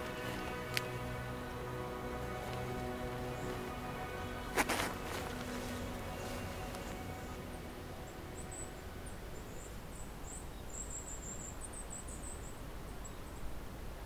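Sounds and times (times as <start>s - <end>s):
low background rumble: 0.0s - 10.8s.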